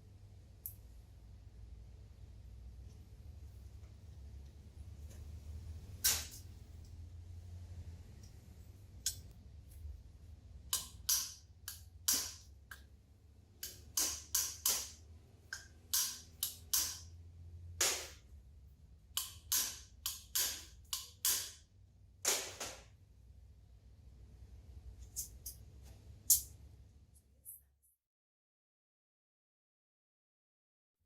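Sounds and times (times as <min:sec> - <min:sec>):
low steady hum: 0:00.0 - 0:22.3.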